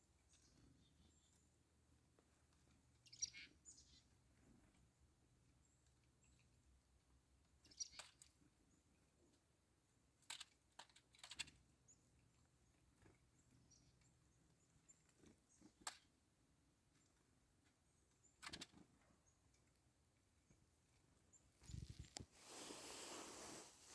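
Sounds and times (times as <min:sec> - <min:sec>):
soft high bird chirps: 0:00.2 - 0:01.6, 0:02.8 - 0:04.2, 0:07.6 - 0:08.8, 0:21.2 - 0:23.6.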